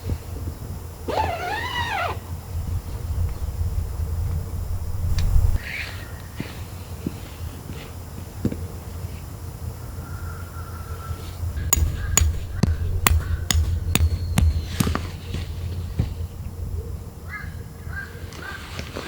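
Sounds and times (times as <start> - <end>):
hammer strikes ringing: 11.6 - 16.5.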